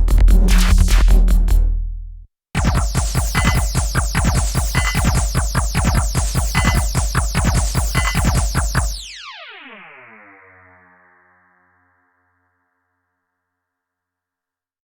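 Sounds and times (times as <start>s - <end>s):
electronic drum pattern: 0.0s - 1.8s, 2.6s - 9.0s.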